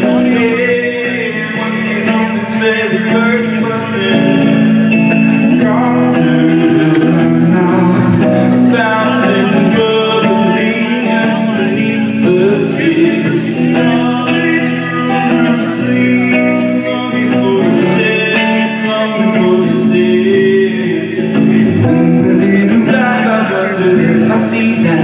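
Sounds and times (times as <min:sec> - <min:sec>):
person singing: 0:00.0 - 0:25.0
instrumental accompaniment: 0:05.1 - 0:10.1, 0:21.4 - 0:23.1.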